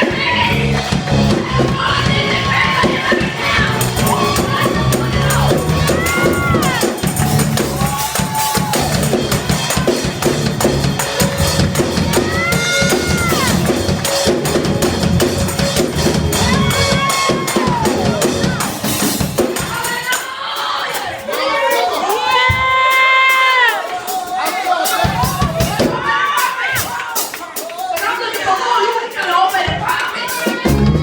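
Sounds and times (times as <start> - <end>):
voices singing held notes: 0.0 - 7.8
drum kit and bass beat: 0.0 - 31.0.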